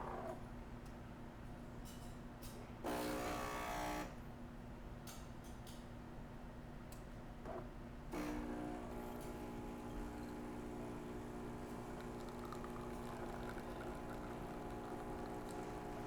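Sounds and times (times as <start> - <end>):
faint machine hum: 0.0 - 16.0
pump hum: 8.1 - 16.0
coffee grinder buzzing: 8.2 - 16.0.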